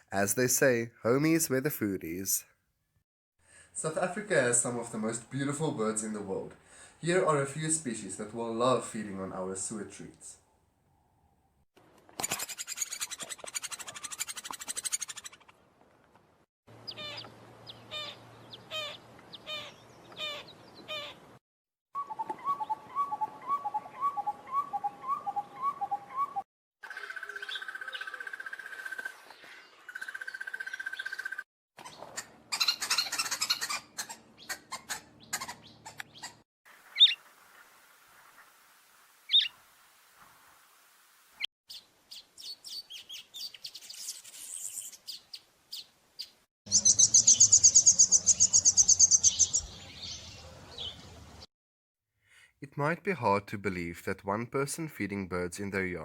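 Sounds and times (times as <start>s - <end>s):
birds calling and singing: 16.8s - 21.2s, 22.0s - 36.4s, 37.0s - 37.2s, 39.3s - 39.5s, 41.7s - 51.5s.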